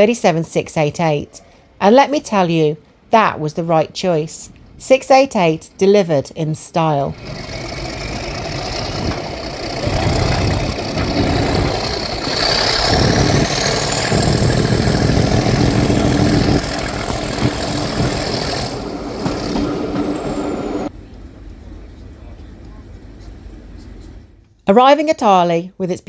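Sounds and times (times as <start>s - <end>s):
diesel locomotive engine rumbling: 5.1s - 24.6s
turbocharger whistle: 7.1s - 19.6s.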